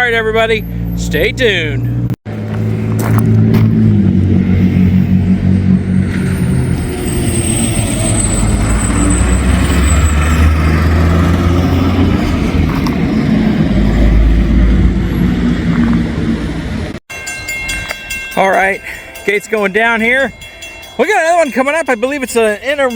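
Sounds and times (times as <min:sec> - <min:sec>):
vehicle engine and road noise: 0:00.0 - 0:17.1.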